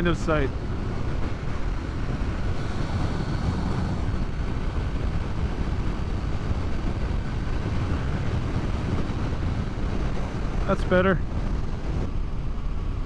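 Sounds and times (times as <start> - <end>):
wind rushing over microphone: 0.0 - 13.0
motorcycle engine: 0.6 - 10.4.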